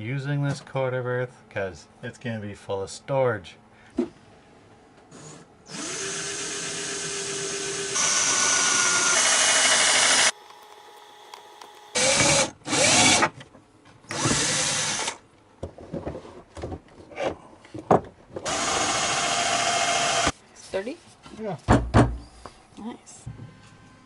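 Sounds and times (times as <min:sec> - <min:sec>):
electric power drill drilling wood: 0:05.2 - 0:13.3, 0:14.1 - 0:15.2, 0:18.4 - 0:20.3.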